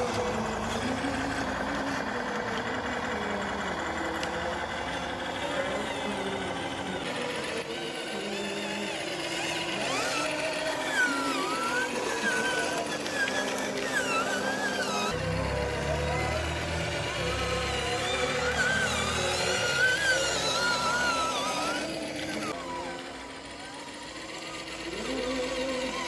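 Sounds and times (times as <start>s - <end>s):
truck engine running: 0.0s - 26.0s
voices: 0.0s - 26.0s.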